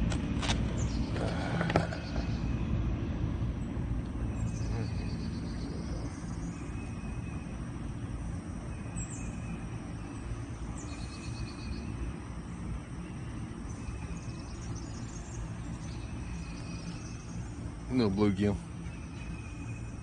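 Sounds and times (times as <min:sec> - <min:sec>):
faint insect trills: 0:00.5 - 0:20.0
bird chirps: 0:04.3 - 0:07.7, 0:08.6 - 0:12.1, 0:12.9 - 0:20.0.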